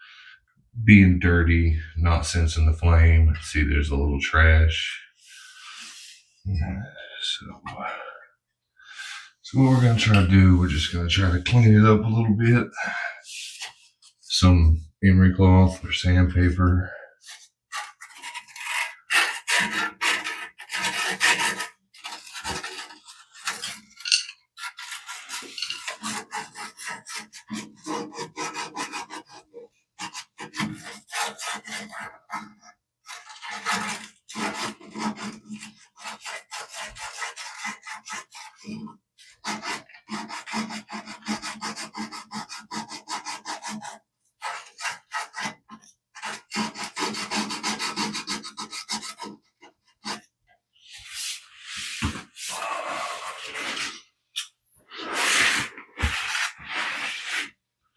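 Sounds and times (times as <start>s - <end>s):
abrasive cloth scraping metal: 9.5s - 11.6s.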